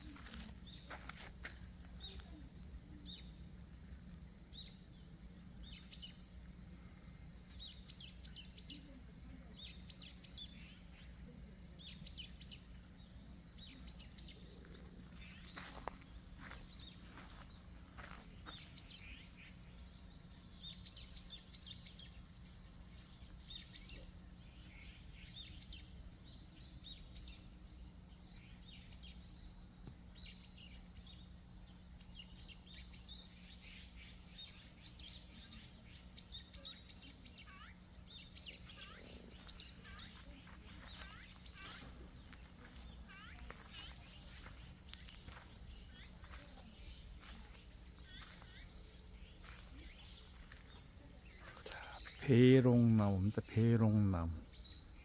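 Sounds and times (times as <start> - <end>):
faint low hum: 0.0 - 55.0
small birds chirping: 0.0 - 55.0.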